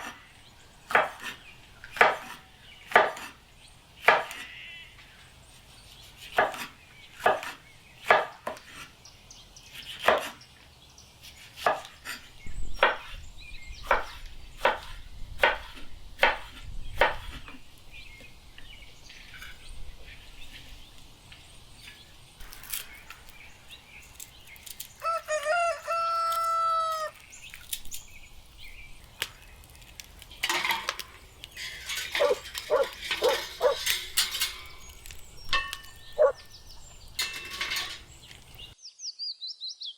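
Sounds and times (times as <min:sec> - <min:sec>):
knife chopping on cutting board: 0:06.3 - 0:08.8, 0:10.0 - 0:10.4, 0:13.9 - 0:17.4
rooster crowing: 0:25.0 - 0:27.2.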